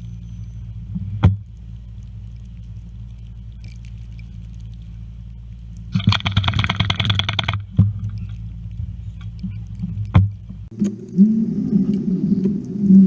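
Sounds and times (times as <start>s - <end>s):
engine and road rumble: 0.0s - 13.0s
rapid clicking rattle: 5.6s - 11.2s.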